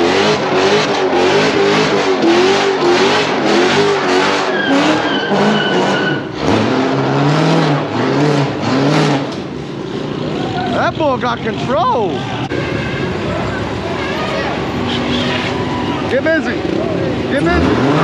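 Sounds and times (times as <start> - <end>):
vehicle engine revving hard: 0.0 - 11.7, 16.2 - 18.0.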